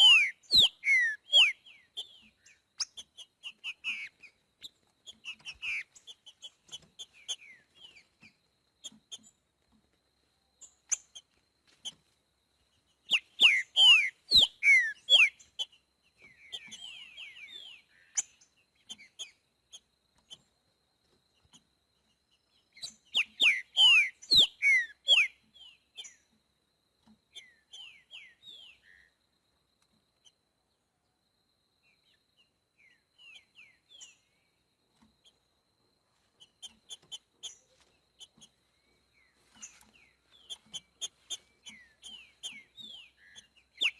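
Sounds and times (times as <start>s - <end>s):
bird whistling downward notes: 0.0s - 2.2s, 13.1s - 15.4s, 23.1s - 25.4s
soft bird chirps: 0.0s - 43.9s.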